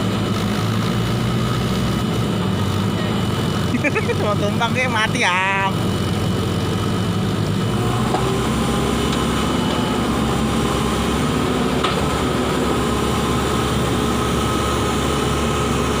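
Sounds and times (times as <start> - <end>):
large vehicle engine humming: 0.0 - 16.0.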